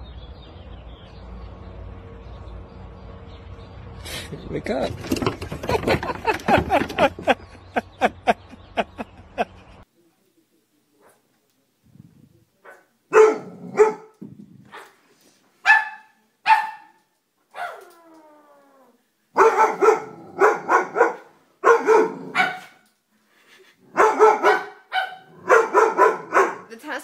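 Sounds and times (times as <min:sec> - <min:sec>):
dog barking: 0:12.6 - 0:14.1, 0:15.6 - 0:17.0, 0:17.6 - 0:17.8, 0:19.4 - 0:22.8, 0:23.9 - 0:26.7.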